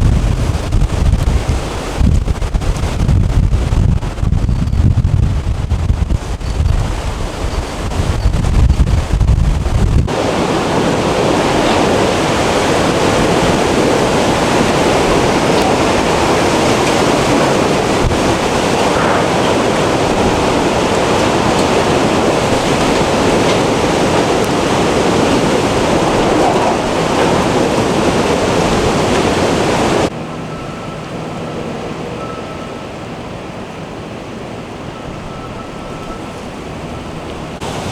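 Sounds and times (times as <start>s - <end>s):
strong wind rushing: 0.0s - 30.2s
wind buffeting microphone: 0.0s - 31.0s.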